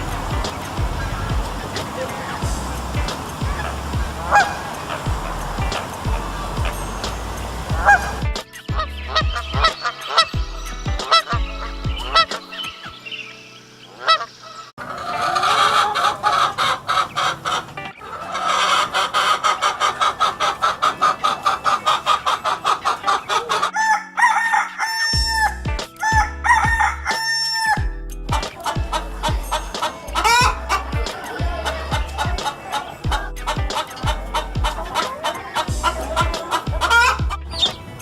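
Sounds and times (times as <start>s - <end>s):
chickens clucking: 0.0s - 13.0s, 13.8s - 38.0s
background music: 0.0s - 38.0s.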